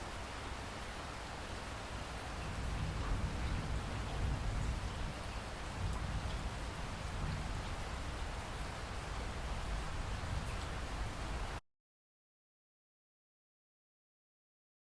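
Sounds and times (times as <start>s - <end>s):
steady rain falling: 0.0s - 11.6s.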